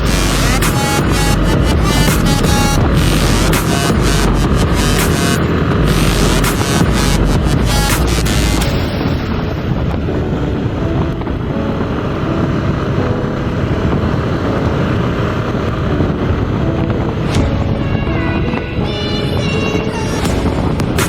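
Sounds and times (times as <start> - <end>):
wind rushing over microphone: 9.2 - 21.0.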